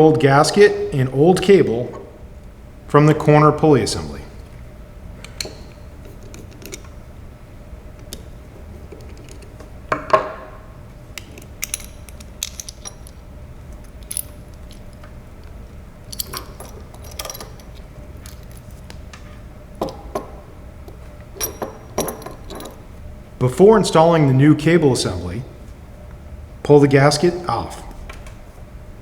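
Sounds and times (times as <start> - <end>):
metal parts clinking and rattling: 5.3 - 6.9, 8.9 - 9.6, 11.2 - 18.9, 20.9 - 22.9.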